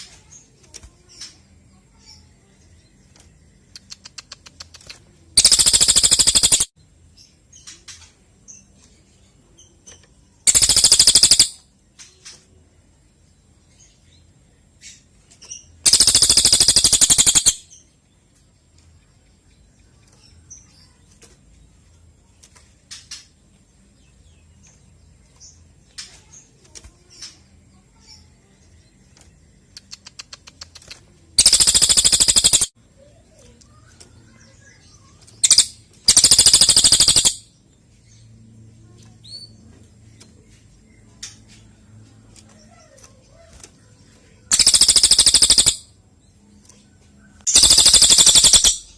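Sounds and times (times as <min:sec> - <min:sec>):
faint bird chirps and ticks: 0:00.0 - 0:48.9
bird trilling: 0:05.4 - 0:06.7, 0:10.5 - 0:11.7, 0:15.6 - 0:17.7, 0:31.4 - 0:32.7, 0:33.9 - 0:37.5, 0:44.4 - 0:45.9, 0:47.4 - 0:48.9.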